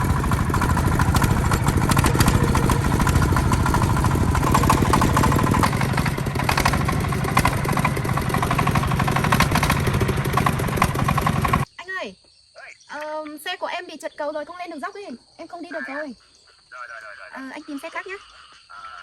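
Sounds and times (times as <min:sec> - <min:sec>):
tractor engine running: 0:00.0 - 0:11.7.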